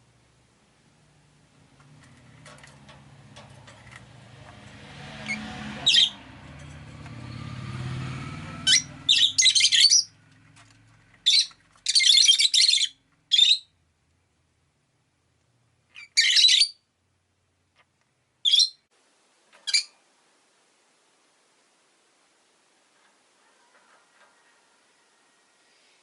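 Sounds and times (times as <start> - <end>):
passing vehicle rumble: 0.9 - 11.8
lovebirds chirping shrilly: 5.2 - 6.2, 8.6 - 10.2, 11.2 - 13.7, 16.0 - 16.8, 18.4 - 18.9.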